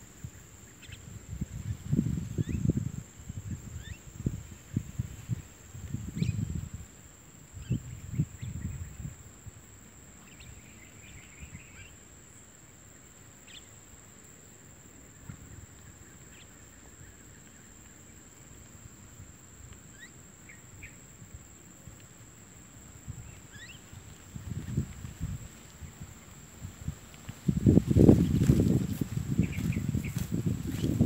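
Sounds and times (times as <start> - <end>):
wind rumble on microphone: 0.0 - 11.9, 21.2 - 31.0
faint bird chirps: 0.3 - 2.7, 3.6 - 4.1, 6.1 - 6.5, 10.2 - 12.5, 13.4 - 13.8, 19.9 - 21.0, 23.2 - 24.6.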